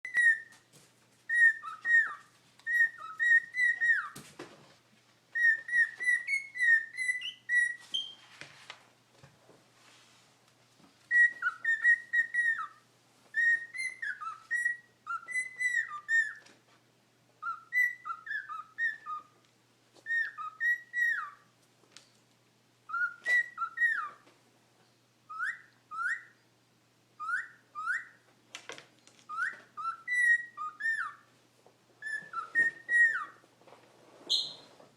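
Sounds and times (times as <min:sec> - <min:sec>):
cockatiel whistling and chattering: 0:00.0 - 0:00.6, 0:01.3 - 0:04.2, 0:05.4 - 0:08.2, 0:11.1 - 0:16.5, 0:17.4 - 0:19.4, 0:20.0 - 0:21.5, 0:22.9 - 0:24.2, 0:25.3 - 0:26.4, 0:27.2 - 0:28.2, 0:29.3 - 0:31.3, 0:32.0 - 0:33.4, 0:34.3 - 0:34.7.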